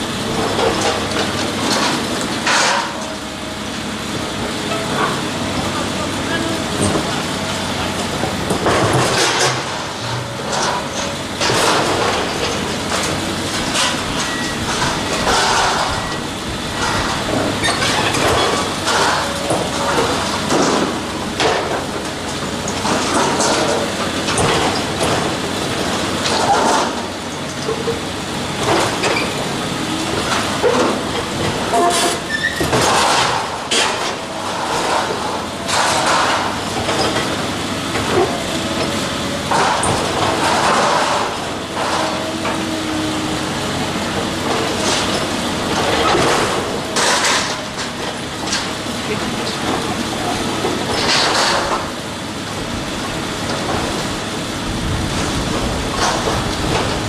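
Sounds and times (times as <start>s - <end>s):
demolition machine noise: 0.0s - 57.0s
metal and debris crashing: 8.3s - 16.2s, 16.8s - 28.0s, 30.2s - 37.4s, 39.5s - 42.6s, 44.2s - 52.0s.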